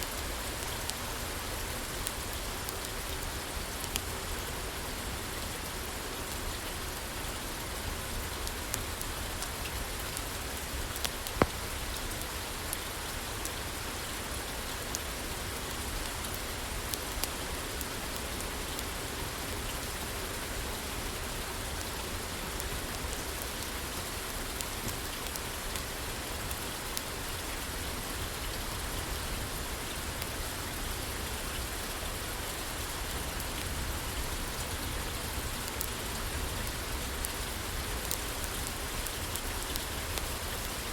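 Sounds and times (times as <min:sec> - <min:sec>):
wood fire crackling: 0:00.0 - 0:04.2, 0:32.2 - 0:40.9
rain on a roof: 0:00.0 - 0:40.9.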